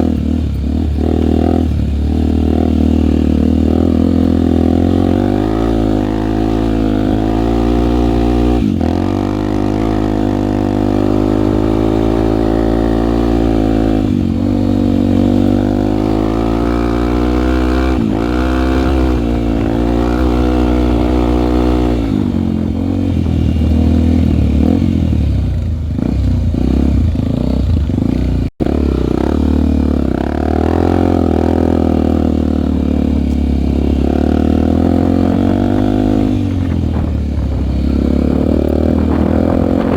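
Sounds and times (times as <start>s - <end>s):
trail bike engine revving: 0.0s - 39.9s.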